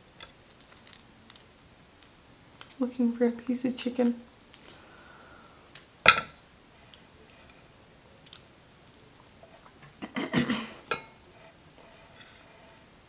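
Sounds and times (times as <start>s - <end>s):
chewing and mouth sounds: 8.2s - 9.8s.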